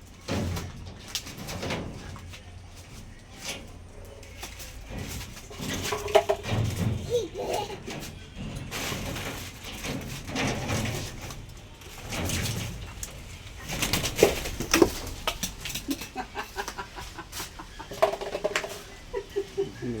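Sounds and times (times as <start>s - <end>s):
bird struggling with knocks and scuffles: 0.0s - 19.7s.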